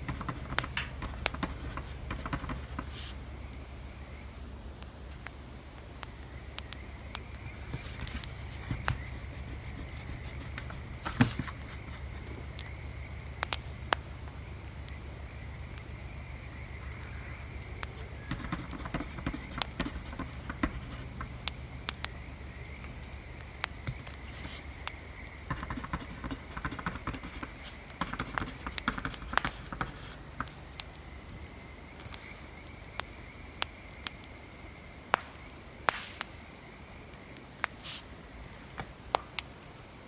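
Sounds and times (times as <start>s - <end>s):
low steady rumble: 0.0s - 37.3s
wood fire crackling and popping: 0.0s - 39.8s
pencil scratching on paper: 7.7s - 12.3s, 18.2s - 21.3s, 25.5s - 30.2s.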